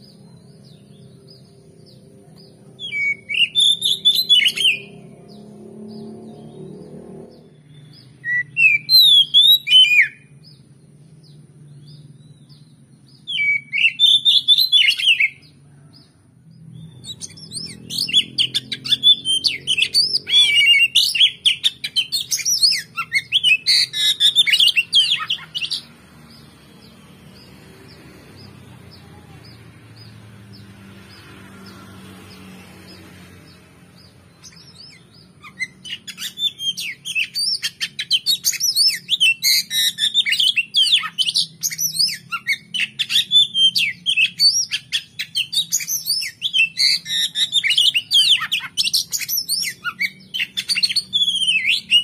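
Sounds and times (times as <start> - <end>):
bird whistles and chirps: 2.8 - 5.0, 7.4 - 10.3, 13.2 - 15.5, 16.8 - 26.5, 34.0 - 52.0.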